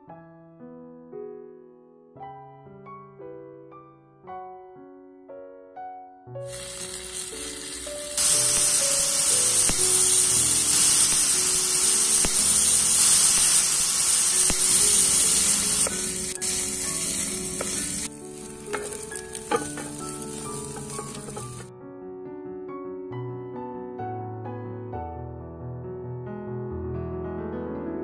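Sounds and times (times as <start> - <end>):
chicken sizzling in hot oil: 6.5 - 21.7
wooden spatula scraping a pan: 15.1 - 21.7.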